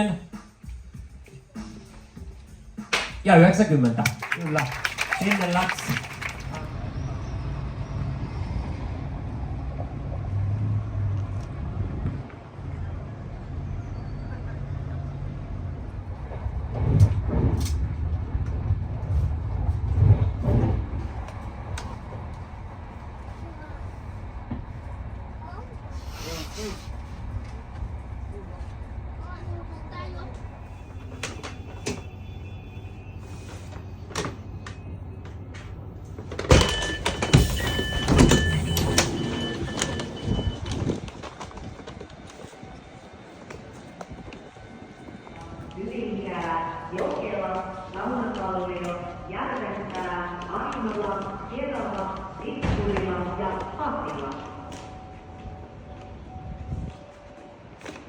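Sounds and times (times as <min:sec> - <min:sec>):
vehicle rumble: 0:04.2 - 0:58.0
clattering and knocks: 0:36.2 - 0:41.6
high electronic beeping: 0:36.5 - 0:40.9.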